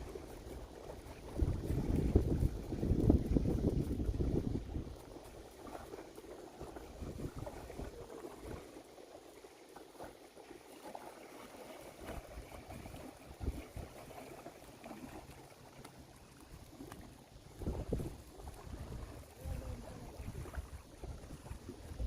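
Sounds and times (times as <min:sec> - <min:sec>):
faint water sounds: 0:00.0 - 0:22.0.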